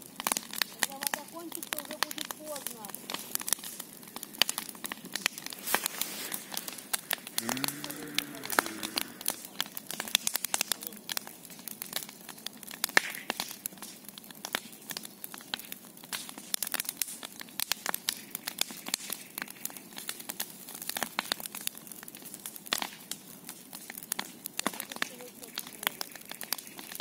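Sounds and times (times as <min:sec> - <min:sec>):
bonfire crackling and snapping: 0:00.0 - 0:27.0.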